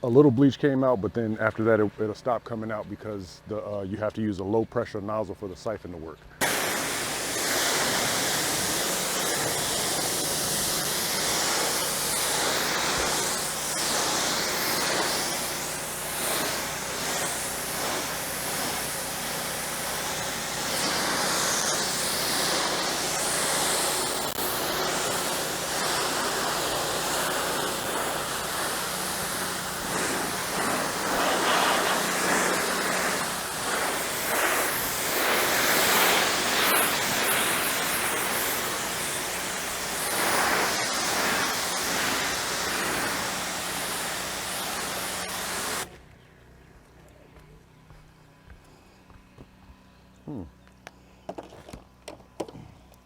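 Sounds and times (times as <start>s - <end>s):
pressure washer jet hissing: 6.4s - 45.9s
pressure washer motor hum: 6.4s - 46.0s.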